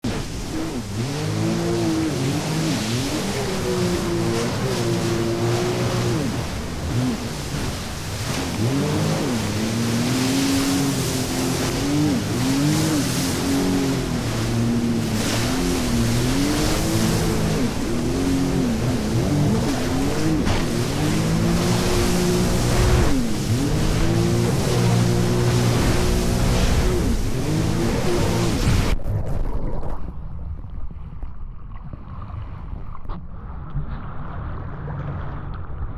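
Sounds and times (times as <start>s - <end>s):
jet ski engine revving: 0.0s - 29.0s
wind: 0.0s - 35.9s
water spray hissing: 1.8s - 28.9s.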